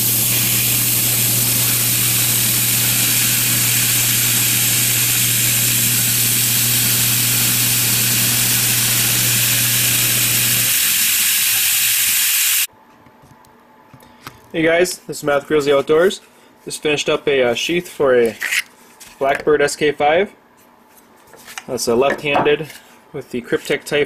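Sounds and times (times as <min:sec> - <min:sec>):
motor or blower hissing: 0:00.0 - 0:12.7.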